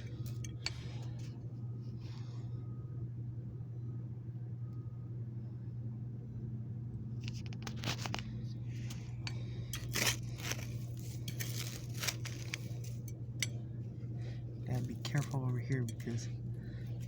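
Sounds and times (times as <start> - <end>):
steady low hum: 0.0 - 17.0
tool digging into soil: 9.8 - 13.1.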